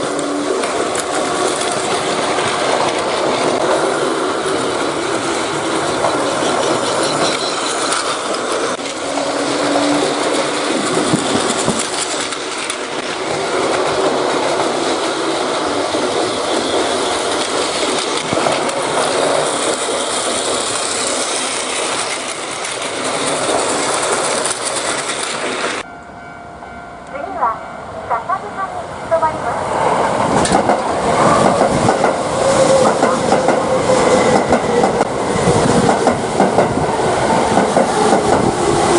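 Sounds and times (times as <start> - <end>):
train wheels rattling on rails: 0.0 - 25.9, 29.6 - 38.9.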